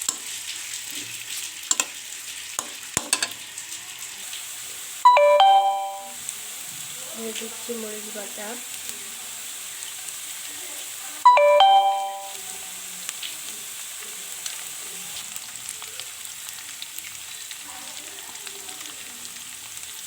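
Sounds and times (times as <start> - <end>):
stirring in a pan: 0.0 - 4.1
onion sizzling in oil: 0.0 - 20.0
short chime: 5.1 - 6.2, 11.3 - 12.3.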